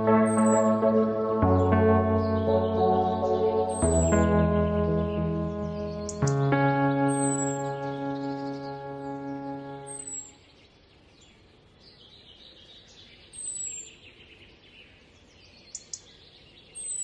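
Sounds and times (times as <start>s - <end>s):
background music chord: 0.0s - 10.3s
birds chirping: 0.0s - 10.4s.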